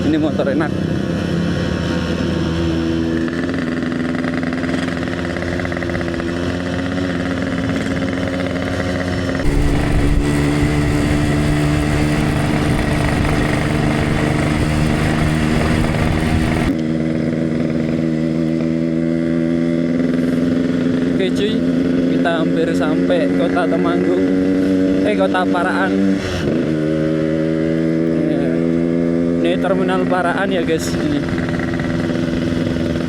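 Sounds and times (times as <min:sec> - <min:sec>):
two-stroke motorcycle engine: 0:00.0 - 0:33.0.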